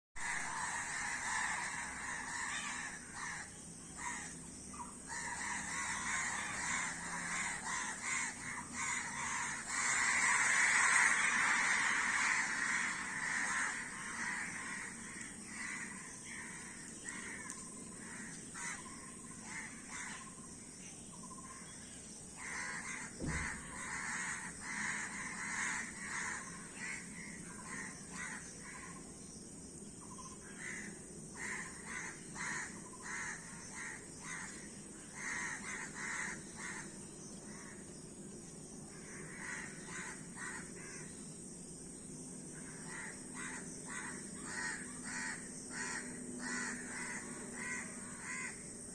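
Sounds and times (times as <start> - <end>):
crows cawing: 0.2 - 20.6, 22.4 - 29.0, 30.4 - 37.8, 38.9 - 41.1, 42.6 - 48.8
low thump: 23.2 - 23.7.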